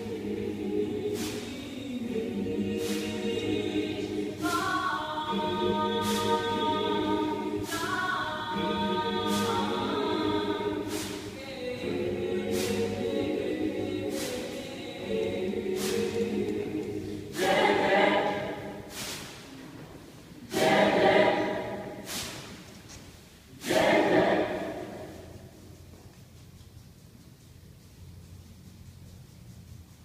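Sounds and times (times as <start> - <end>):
choir singing: 0.0 - 19.3, 20.3 - 22.4, 23.5 - 25.6
sharp percussive hits: 8.6 - 19.2.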